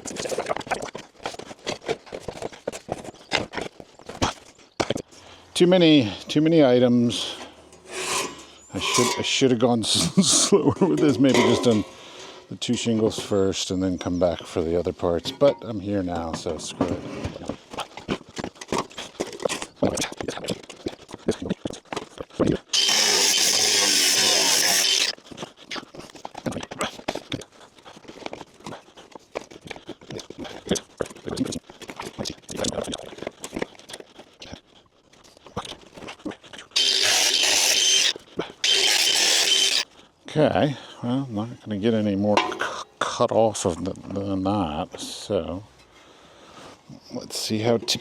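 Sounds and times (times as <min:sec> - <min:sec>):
power tool cutting: 0:22.8 - 0:25.2, 0:36.8 - 0:39.8.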